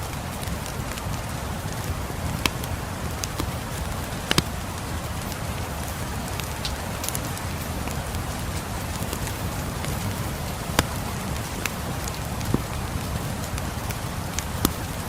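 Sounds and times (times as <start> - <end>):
steady rain: 0.0 - 15.0
wood fire crackling and popping: 0.0 - 15.0.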